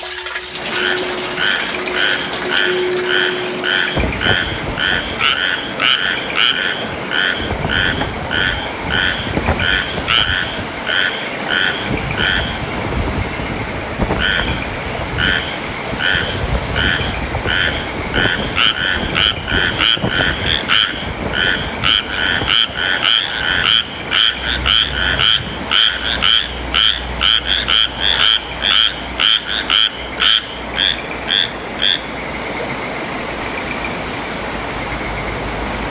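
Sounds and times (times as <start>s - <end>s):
rain hissing: 0.0s - 4.0s
frogs croaking: 4.4s - 12.7s, 14.2s - 32.8s.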